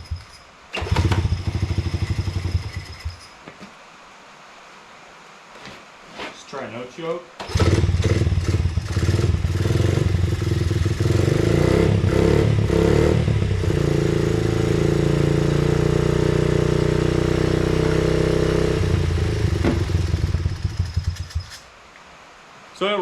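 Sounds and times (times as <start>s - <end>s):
small motorcycle engine revving: 0.0s - 3.3s, 7.4s - 21.6s.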